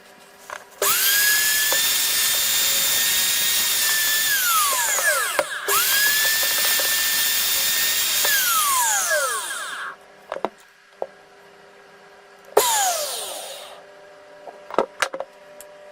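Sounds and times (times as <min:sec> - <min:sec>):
electric drill motor whining: 0:00.8 - 0:10.0, 0:12.6 - 0:13.8.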